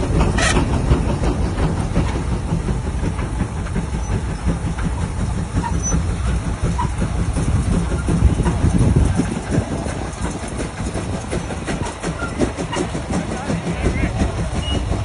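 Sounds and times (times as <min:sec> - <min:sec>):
steam engine rumbling and clattering: 0:00.0 - 0:15.0.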